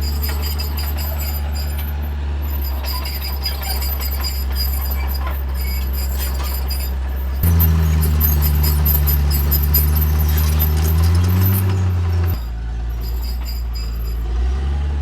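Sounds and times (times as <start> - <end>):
high metallic squeal: 0.0 - 14.6
bulldozer diesel engine: 0.0 - 15.0
metal clinking: 5.9 - 14.3.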